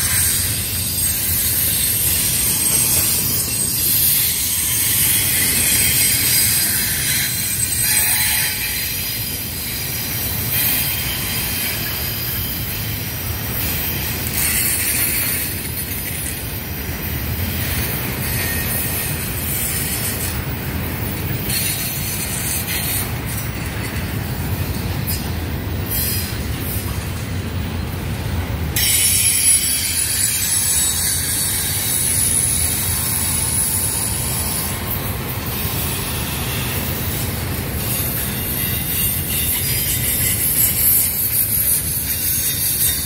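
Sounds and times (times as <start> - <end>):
high-pitched wheel squeal: 0.0 - 27.0, 28.8 - 43.0
freight train rumbling past: 0.0 - 43.0.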